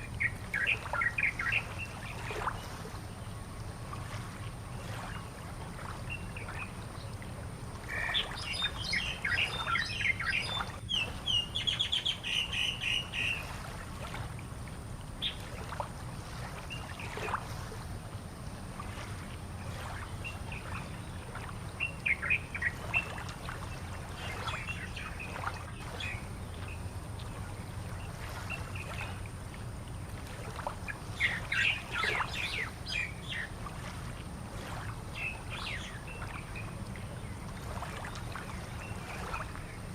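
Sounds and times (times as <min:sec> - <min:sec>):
birds chirping: 0:00.0 - 0:02.1, 0:31.1 - 0:33.6.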